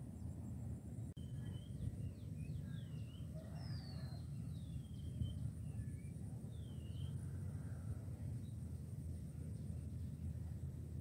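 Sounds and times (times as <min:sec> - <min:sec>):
low steady rumble: 0:00.0 - 0:11.0
birds whistling calls: 0:01.2 - 0:07.2.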